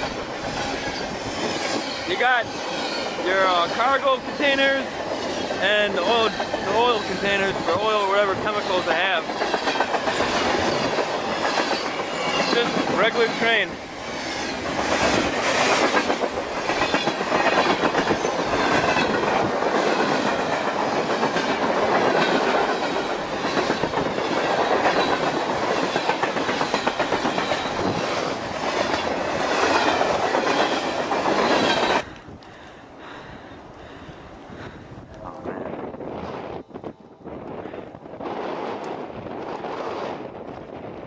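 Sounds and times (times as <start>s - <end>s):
wheels squealing on rails: 0.0s - 32.2s
train wheels clattering over rail joints: 0.0s - 33.2s.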